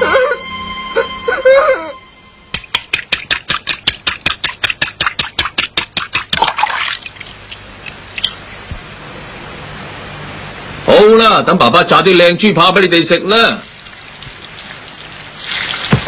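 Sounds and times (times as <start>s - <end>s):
rapid sharp taps: 2.5s - 6.5s.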